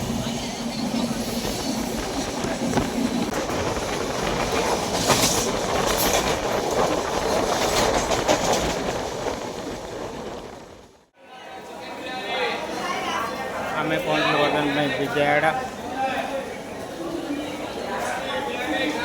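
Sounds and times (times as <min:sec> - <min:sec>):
train rumbling: 0:00.0 - 0:11.1
wheels clattering over rail joints: 0:00.2 - 0:10.8.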